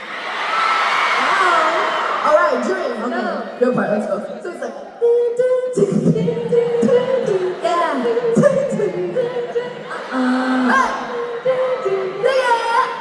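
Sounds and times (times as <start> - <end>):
crowd singing a cappella: 3.0 - 13.0.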